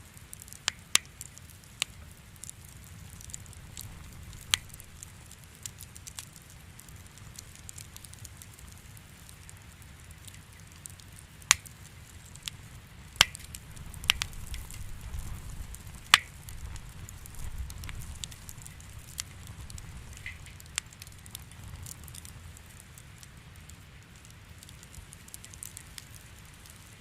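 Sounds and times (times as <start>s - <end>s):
wood fire crackling: 0.0s - 27.0s
low rumble: 13.6s - 20.5s.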